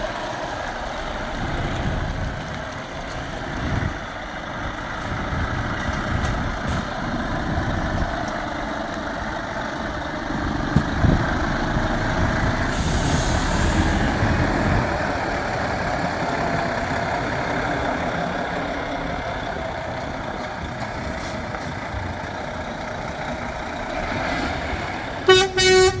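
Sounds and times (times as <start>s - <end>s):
diesel truck engine idling: 0.0s - 26.0s.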